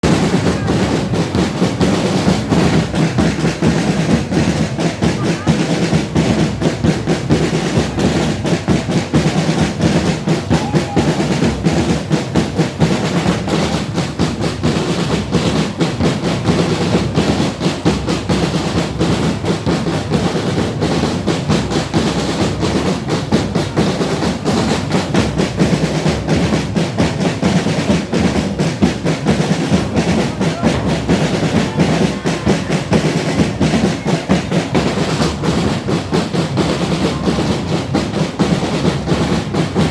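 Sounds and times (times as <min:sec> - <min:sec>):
drumming band playing: 0:00.0 - 0:39.9.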